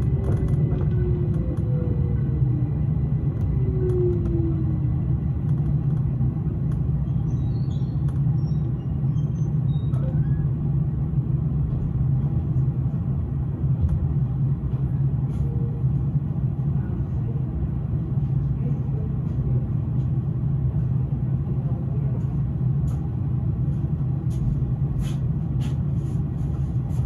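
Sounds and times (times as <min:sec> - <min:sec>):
train wheels rumbling: 0:00.0 - 0:09.0.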